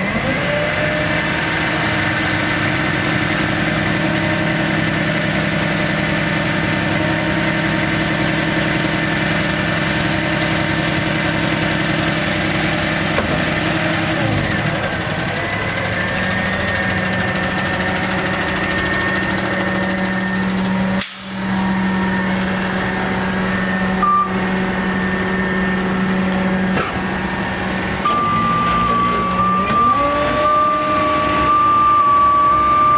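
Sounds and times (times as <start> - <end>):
truck engine running: 0.0 - 32.9
short beep: 23.9 - 25.7, 28.0 - 30.5.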